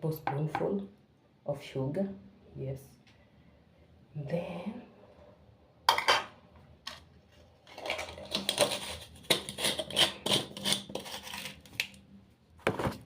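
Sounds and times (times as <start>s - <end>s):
utensil tapping and scraping a bowl: 7.8s - 11.8s.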